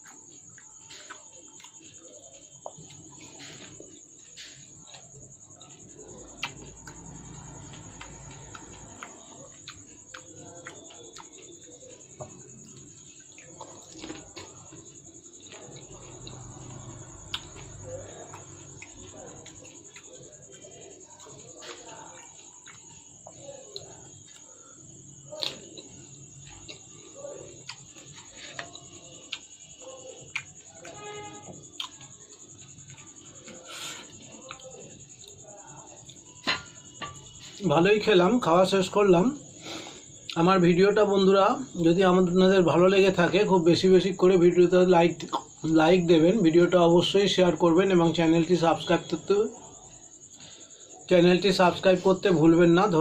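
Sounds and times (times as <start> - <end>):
wet chewing and mouth clicks: 2.6 - 24.5, 25.3 - 31.0, 31.6 - 36.4
faint high-pitched hiss: 7.9 - 53.0.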